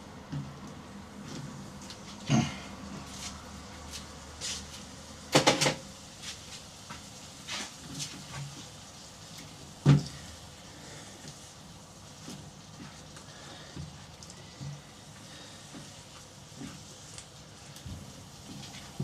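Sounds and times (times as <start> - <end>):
knocks and clatters in kitchen: 5.3 - 5.8.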